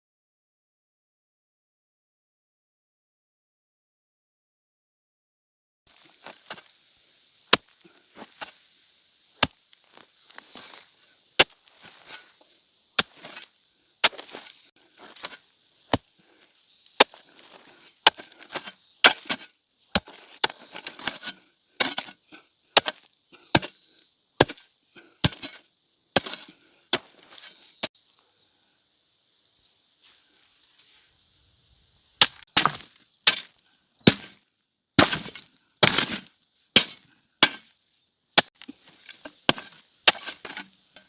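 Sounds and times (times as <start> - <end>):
steady high hiss: 5.9 - 14.7
rustling and scraping: 5.9 - 27.9, 38.4 - 41.0.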